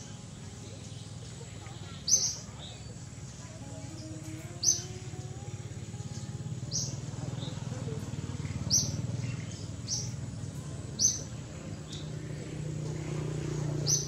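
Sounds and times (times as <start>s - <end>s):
bird chirping: 0.0s - 14.0s
steady low hum: 0.0s - 14.0s.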